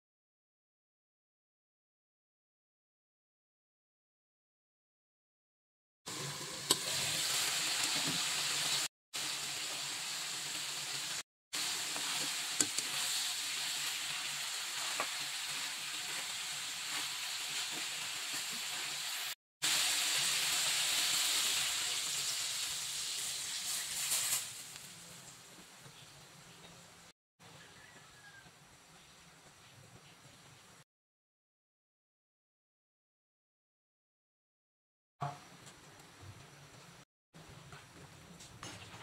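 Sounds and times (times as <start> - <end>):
chicken sizzling in hot oil: 6.1 - 30.8.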